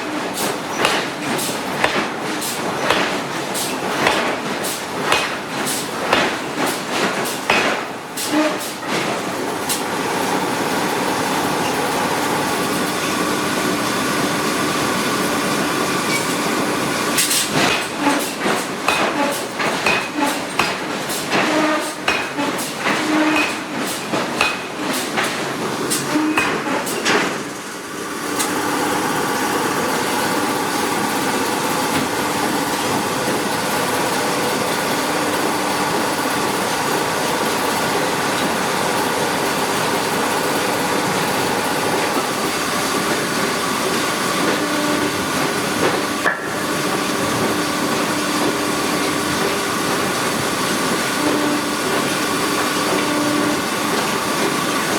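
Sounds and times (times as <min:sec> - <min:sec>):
forging hammer striking steel: 0:00.0 - 0:06.7, 0:07.4 - 0:07.9, 0:18.8 - 0:25.4, 0:26.2 - 0:27.2, 0:46.2 - 0:46.7
machinery noise with hum: 0:00.0 - 0:54.9.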